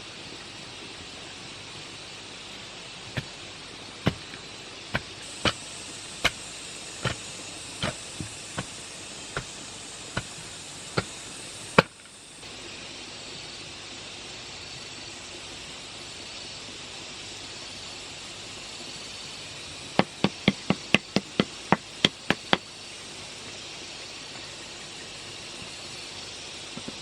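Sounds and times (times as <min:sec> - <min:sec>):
high insect buzz: 0:00.0 - 0:27.0
steady hiss: 0:00.0 - 0:27.0
sharp hammering knocks: 0:04.1 - 0:04.4, 0:20.0 - 0:22.6.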